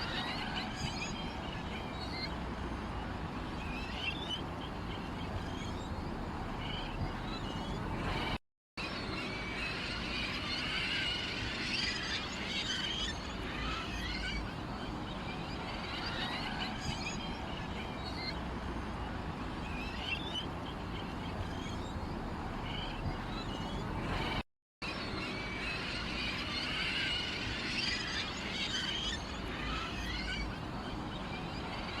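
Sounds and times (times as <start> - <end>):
songbirds chirping: 0.0 - 8.4, 9.0 - 24.4.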